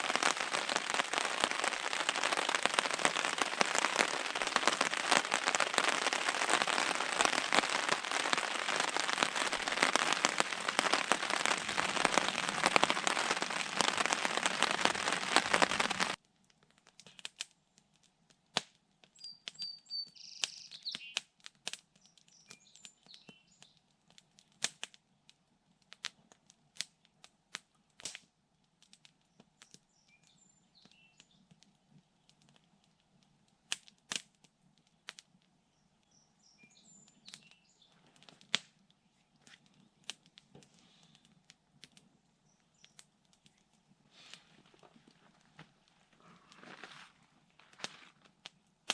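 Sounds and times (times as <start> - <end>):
heavy rain pattering: 0.0 - 16.2, 44.2 - 48.3
small bird chirping: 19.1 - 21.3, 22.0 - 23.8, 29.3 - 31.5, 35.7 - 38.0, 42.4 - 43.6.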